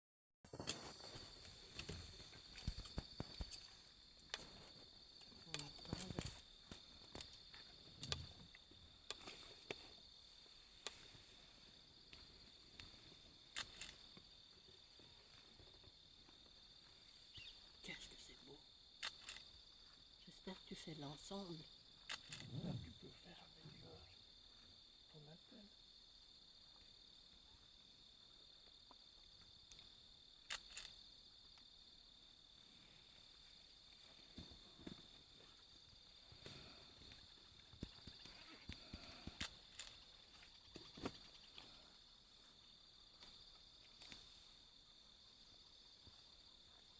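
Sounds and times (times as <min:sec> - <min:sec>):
insects trilling: 0:00.5 - 0:46.9
sharp snaps and clicks: 0:19.0 - 0:19.5, 0:30.5 - 0:31.0.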